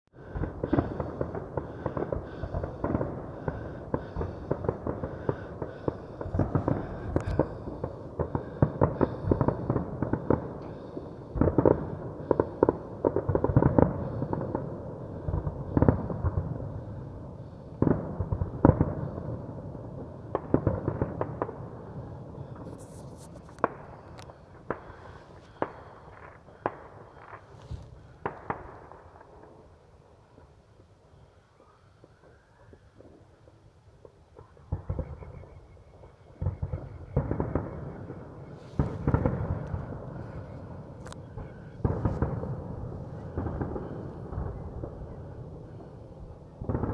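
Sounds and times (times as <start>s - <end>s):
continuous rumble: 0.2s - 13.0s
fireworks bangs and crackles: 0.2s - 31.0s, 32.0s - 46.9s.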